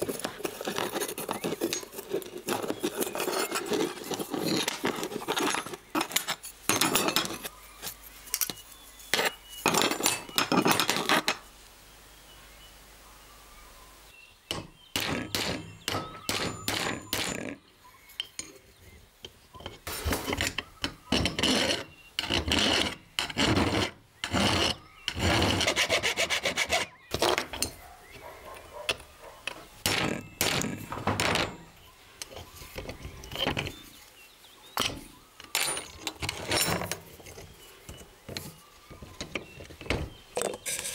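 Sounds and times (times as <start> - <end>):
file rasping on steel: 0.0 - 7.4, 20.1 - 27.8.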